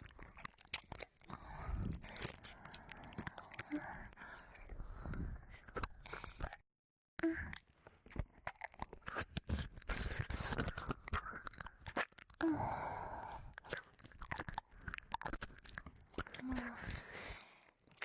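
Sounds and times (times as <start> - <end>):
wet licking mouth sounds: 0.0 - 4.7, 8.4 - 12.4, 13.6 - 17.3.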